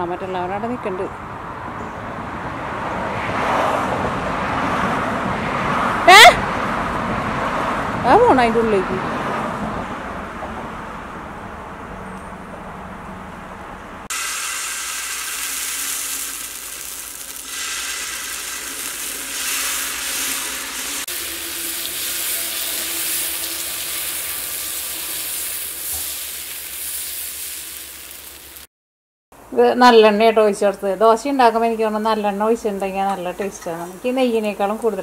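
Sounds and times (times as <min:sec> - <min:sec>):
batter sizzling on hot pan: 0:14.1 - 0:28.7.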